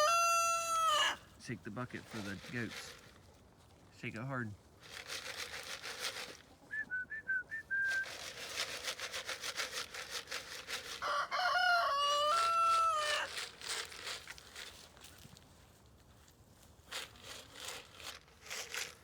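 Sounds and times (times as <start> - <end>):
rooster crowing: 0.0 - 1.2, 11.0 - 13.3
chicken calls: 0.0 - 1.3, 10.8 - 13.4.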